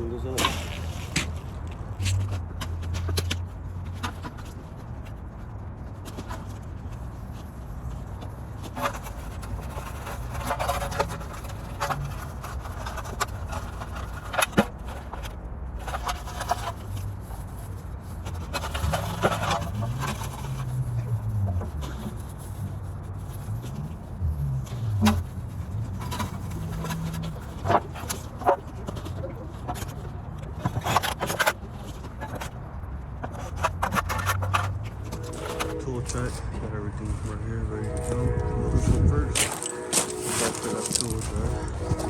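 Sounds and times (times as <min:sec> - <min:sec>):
low steady rumble: 0:00.0 - 0:42.0
tools knocking and scraping: 0:18.2 - 0:22.6, 0:23.2 - 0:32.6, 0:33.2 - 0:36.2.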